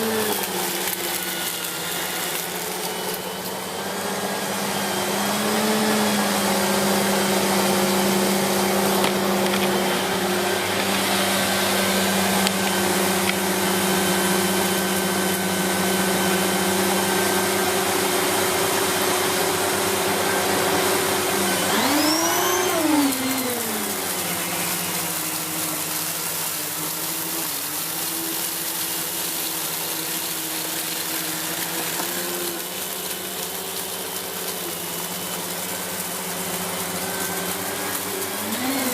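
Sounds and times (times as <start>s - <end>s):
vacuum cleaner on carpet: 0.0s - 38.9s.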